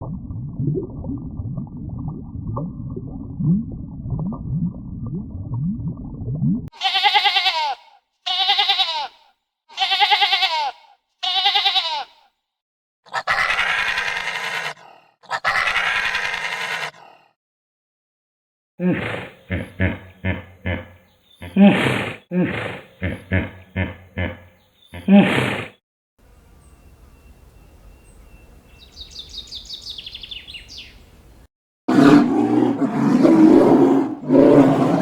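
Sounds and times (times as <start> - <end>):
animal calls: 13.1 - 17.0.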